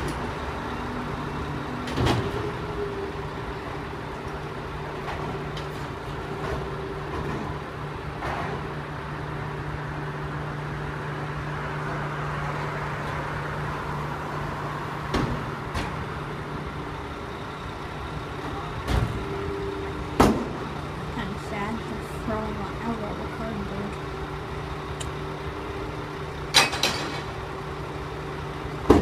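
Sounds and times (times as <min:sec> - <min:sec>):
garbage truck humming: 0:00.0 - 0:29.0
trash knocks and bangs: 0:01.8 - 0:02.6, 0:04.9 - 0:08.8, 0:15.0 - 0:16.3, 0:18.4 - 0:19.3, 0:20.1 - 0:20.8, 0:28.8 - 0:29.0.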